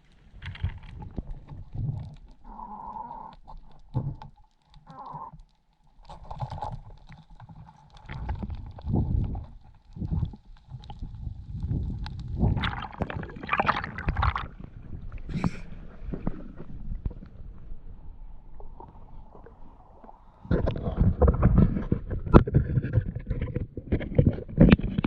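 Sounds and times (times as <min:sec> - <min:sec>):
muffled water sloshing: 0:06.4 - 0:25.0.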